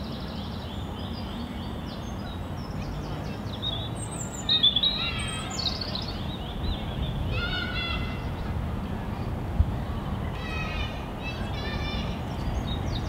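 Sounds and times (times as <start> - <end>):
birds chirping and calling: 0.0 - 8.4
low outdoor background noise: 0.0 - 13.0.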